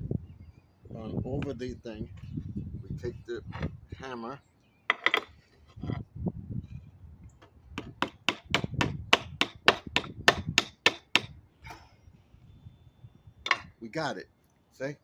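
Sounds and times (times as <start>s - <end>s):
hammer tapping a staple: 7.8s - 11.4s.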